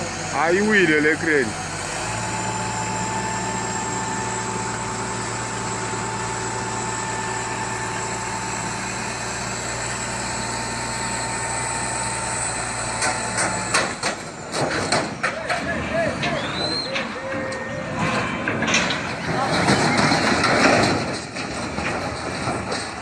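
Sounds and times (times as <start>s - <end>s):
engine running steadily: 0.0s - 16.4s
sharp knocks and clatter: 13.0s - 17.1s, 18.0s - 23.0s.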